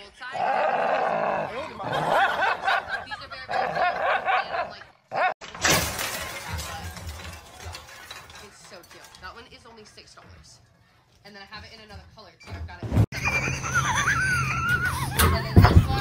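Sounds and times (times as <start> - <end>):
small dog snarling and growling: 0.4 - 2.1.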